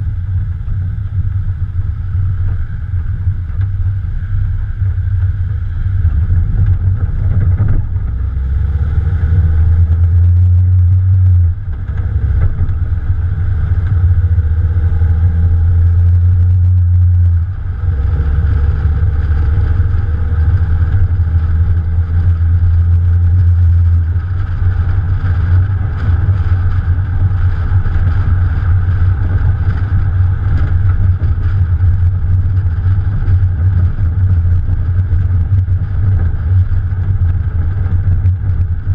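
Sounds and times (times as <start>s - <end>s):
car engine low rumble: 0.0s - 38.9s.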